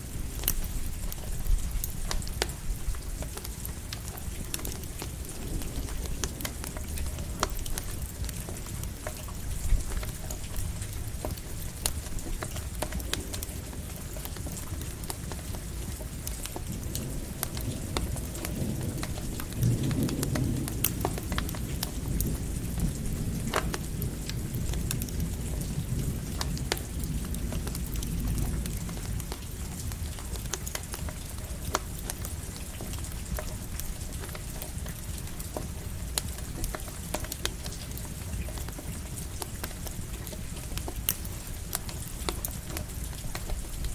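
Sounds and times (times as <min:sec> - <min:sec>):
campfire crackling and popping: 0:00.0 - 0:43.9
light rain: 0:00.0 - 0:43.9
low roll of thunder: 0:16.6 - 0:29.0.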